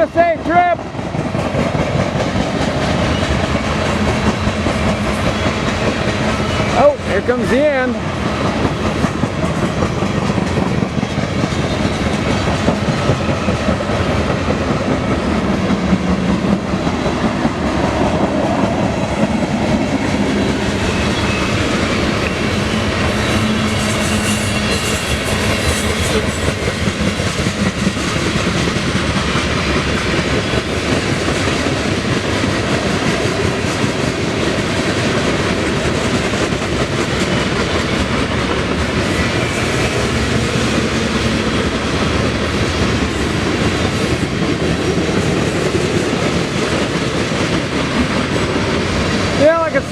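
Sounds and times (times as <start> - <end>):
clickety-clack over rail joints: 0.0 - 49.9
freight train wheels rumbling: 0.0 - 49.9.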